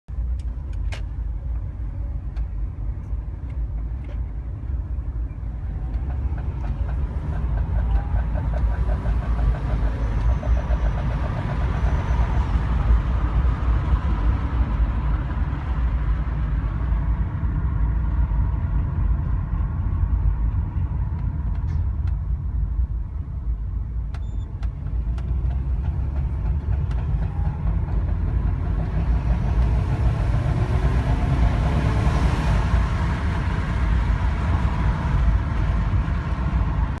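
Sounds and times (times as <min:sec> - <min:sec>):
car engine and road rumble: 0:00.1 - 0:37.0.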